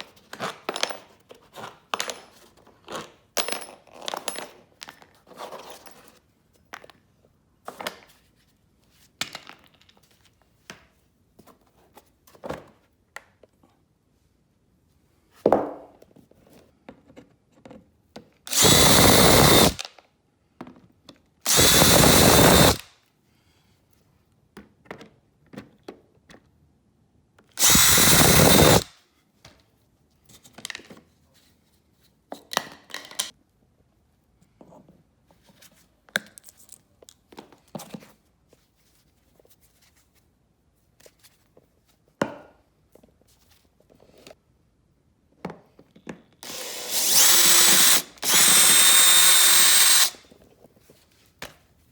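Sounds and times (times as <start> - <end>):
power drill whirring: 18.5 - 19.9, 21.5 - 22.9, 27.6 - 28.9, 46.4 - 50.2.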